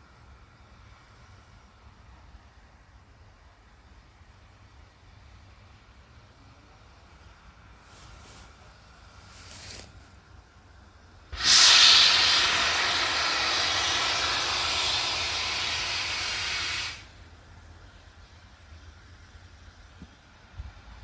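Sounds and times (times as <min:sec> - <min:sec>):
steam locomotive hissing steam: 0:07.6 - 0:10.2, 0:11.2 - 0:21.0.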